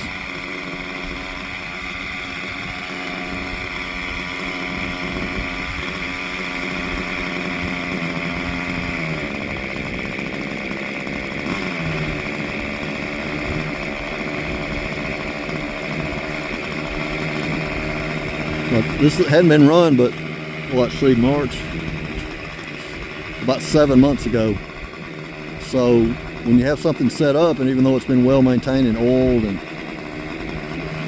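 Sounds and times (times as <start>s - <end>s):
model helicopter engine buzzing: 0.0s - 31.0s.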